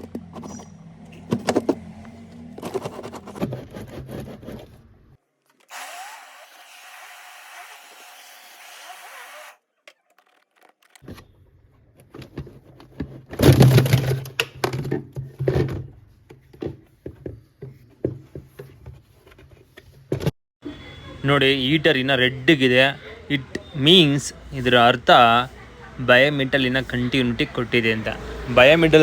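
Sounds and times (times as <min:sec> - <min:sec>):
knocks scrapes and clatter: 0:00.0 - 0:04.9.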